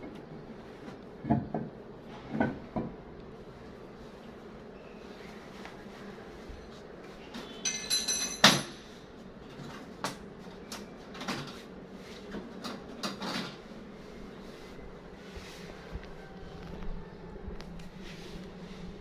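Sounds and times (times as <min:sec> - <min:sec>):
metal parts clinking and knocking: 0:07.6 - 0:08.8.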